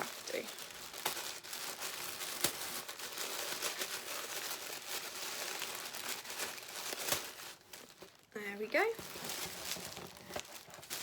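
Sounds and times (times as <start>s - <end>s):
paper wrapping crinkling and tearing: 0.0s - 11.0s
sharp paper snap: 2.3s - 2.7s.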